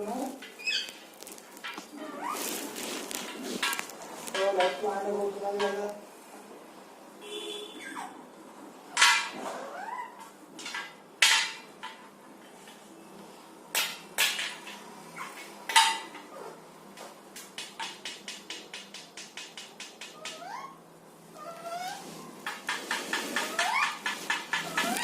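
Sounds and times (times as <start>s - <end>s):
parrot squawking: 20.1s - 20.8s, 21.4s - 22.6s, 23.3s - 25.0s.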